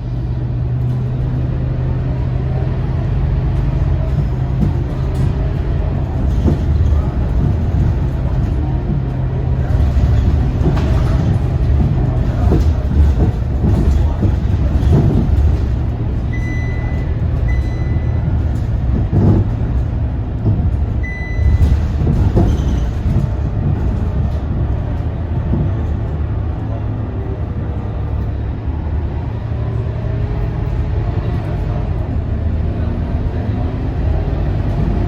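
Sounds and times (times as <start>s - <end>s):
bus body knocking and rattling: 0.0s - 35.0s
bus diesel engine hum: 0.0s - 35.0s
short electronic beeps: 16.3s - 18.2s, 21.0s - 21.7s.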